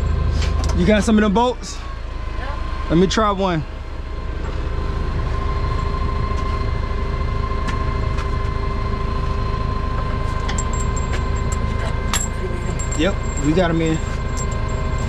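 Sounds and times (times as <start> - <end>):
engine whine: 0.0 - 15.0
heavy equipment engine idling: 0.0 - 15.0
light metal clinks: 10.5 - 15.0.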